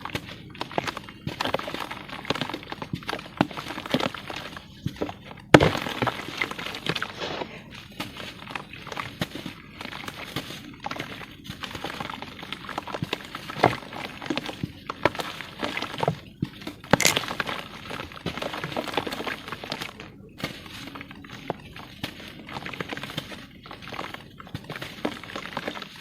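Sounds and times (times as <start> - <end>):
cement crumbling and crunching: 5.5 - 7.7, 17.0 - 17.4
cement snapping: 17.0 - 17.2.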